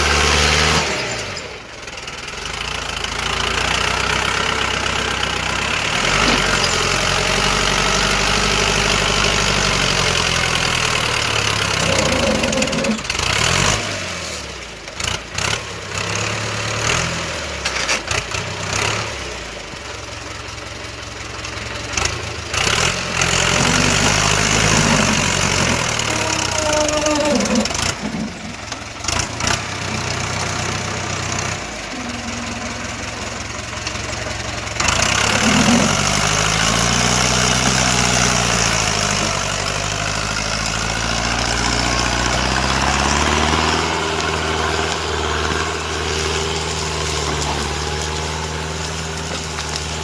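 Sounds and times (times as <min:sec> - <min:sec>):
vehicle engine revving: 0:00.0 - 0:01.6, 0:02.4 - 0:19.5, 0:21.9 - 0:50.0.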